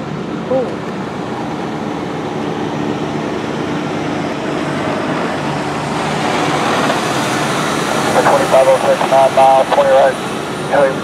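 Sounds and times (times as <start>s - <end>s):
aircraft engine rumble and hiss: 0.0s - 11.0s
faint high whine: 6.5s - 11.0s.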